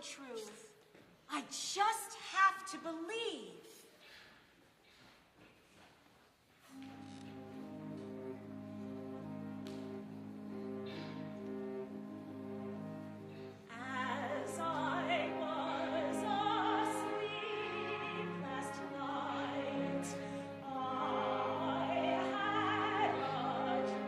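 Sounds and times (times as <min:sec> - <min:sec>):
instrumental accompaniment: 0:06.7 - 0:24.0
operatic singing: 0:13.6 - 0:24.0.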